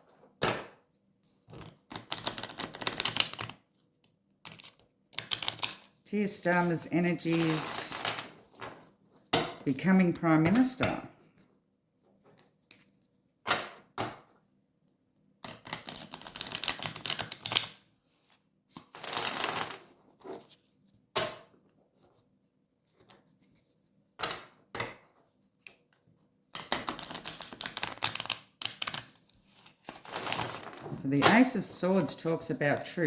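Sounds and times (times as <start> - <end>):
cards snapping and tapping: 26.6 - 29.2
cards riffling and rustling: 26.6 - 31.4.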